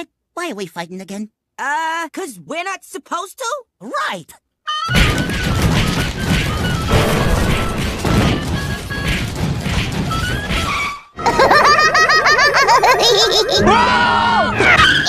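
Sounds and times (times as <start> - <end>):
music: 4.7 - 11.0
cartoon crashes and thwacks: 4.9 - 10.9.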